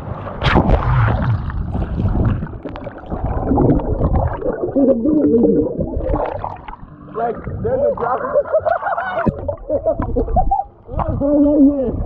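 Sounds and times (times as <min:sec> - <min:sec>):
sea water splashing and churning: 0:00.0 - 0:09.6.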